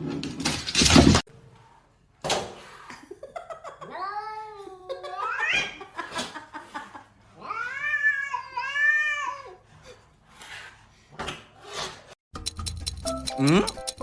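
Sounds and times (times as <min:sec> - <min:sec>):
cat meowing: 0:07.4 - 0:09.6.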